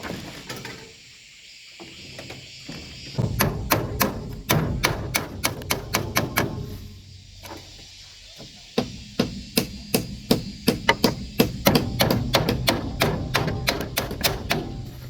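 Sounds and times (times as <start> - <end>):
hand tool knocking on wood: 3.2 - 6.7, 8.8 - 14.9.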